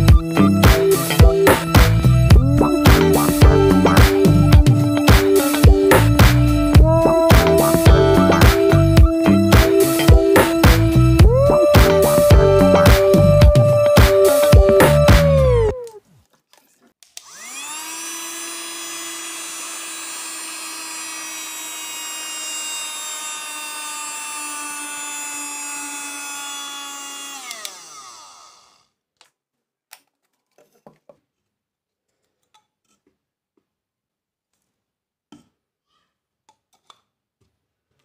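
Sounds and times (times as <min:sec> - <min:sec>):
vacuum cleaner motor whining: 0:17.2 - 0:28.8.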